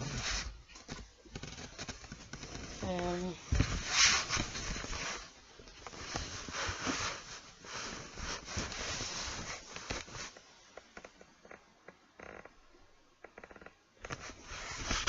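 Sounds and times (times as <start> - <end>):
rustling handling noise: 0.0 - 11.0, 14.1 - 15.0.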